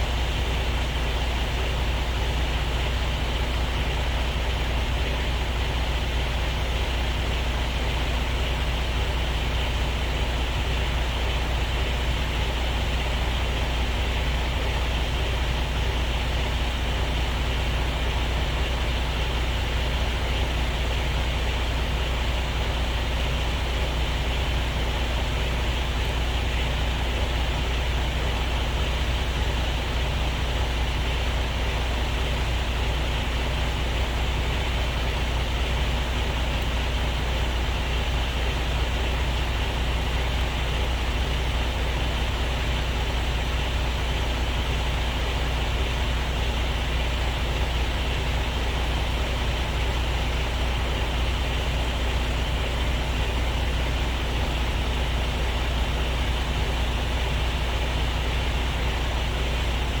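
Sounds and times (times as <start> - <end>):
diesel truck engine droning: 0.0 - 60.0.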